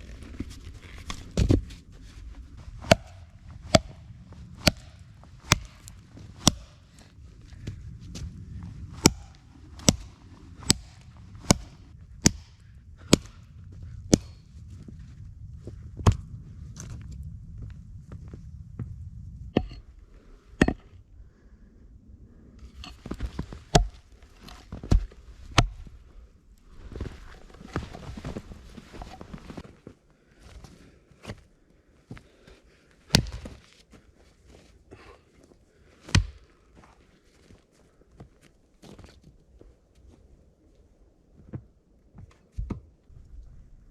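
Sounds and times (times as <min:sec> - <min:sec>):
steady low rumble: 0:00.0 - 0:32.0, 0:42.8 - 0:43.9.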